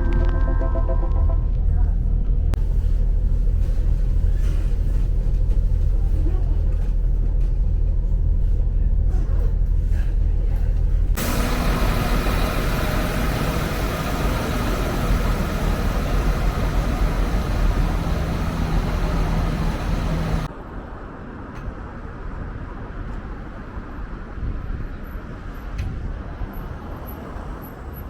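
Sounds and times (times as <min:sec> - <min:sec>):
faint engine hum: 0:00.0 - 0:20.5
train rumble and hiss: 0:01.7 - 0:28.0.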